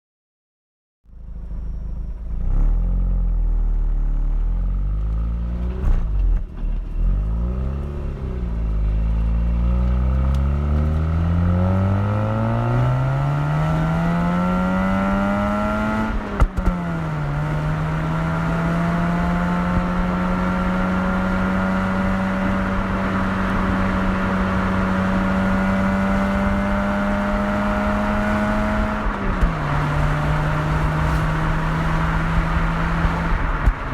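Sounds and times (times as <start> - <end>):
rotary engine exhaust revving: 1.1 - 33.9.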